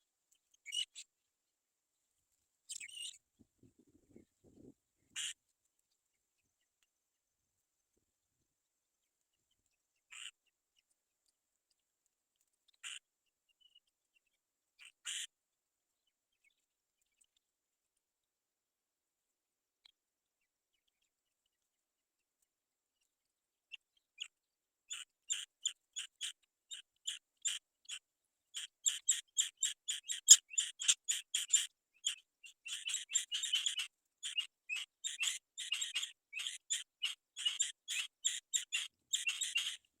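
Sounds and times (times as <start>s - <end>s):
bird nestlings chirping: 28.8s - 39.8s.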